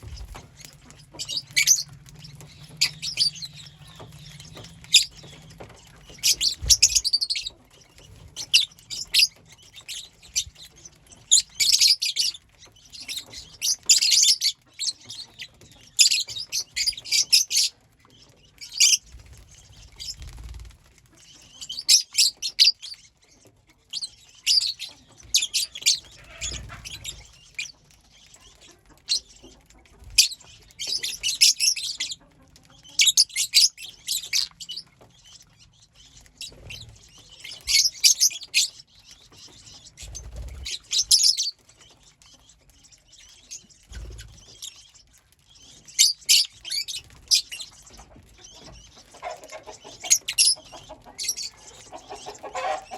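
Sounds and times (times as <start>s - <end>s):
lovebirds chirping shrilly: 0.0s - 15.2s, 24.0s - 27.7s, 45.6s - 52.9s.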